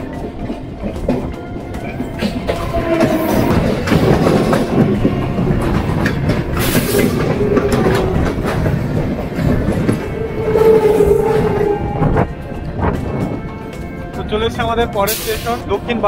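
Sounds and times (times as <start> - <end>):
train whine: 0.0 - 14.5
train rumble: 0.0 - 16.0
wheels clattering over rail joints: 0.0 - 16.0.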